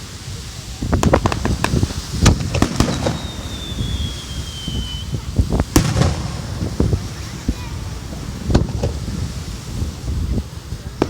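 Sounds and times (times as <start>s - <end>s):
fireworks bursting and crackling: 0.0s - 11.0s
falling whistle: 2.8s - 5.2s.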